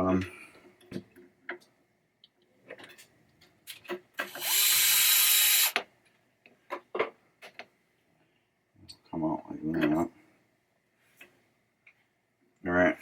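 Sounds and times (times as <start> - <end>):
electric screwdriver running: 4.3 - 5.8.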